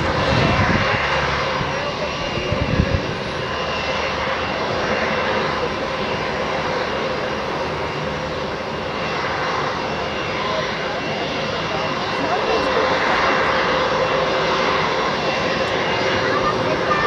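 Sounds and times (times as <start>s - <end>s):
wind buffeting microphone: 0.0s - 6.3s
jet engines roaring with whine: 0.0s - 17.0s.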